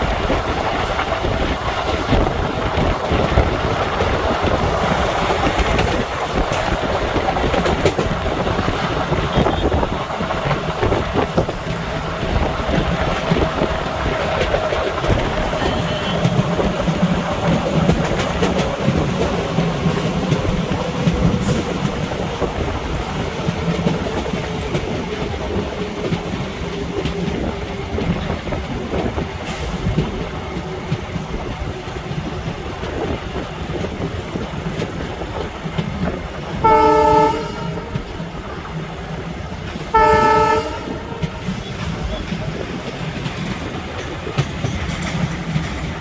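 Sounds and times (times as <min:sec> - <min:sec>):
train rumbling: 0:00.0 - 0:46.0
train horn blasts: 0:09.3 - 0:09.9, 0:15.6 - 0:16.4, 0:36.6 - 0:38.1, 0:39.9 - 0:41.6.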